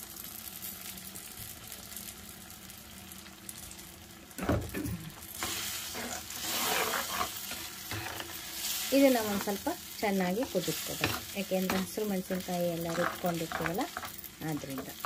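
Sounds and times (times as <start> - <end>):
masala sizzling in a pan: 0.0 - 15.0
spoon stirring: 11.0 - 15.0.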